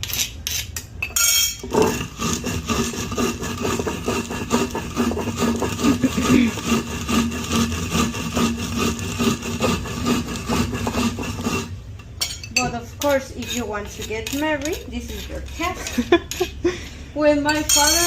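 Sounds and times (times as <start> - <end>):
stone on stone scraping: 1.5 - 11.8, 12.6 - 16.6.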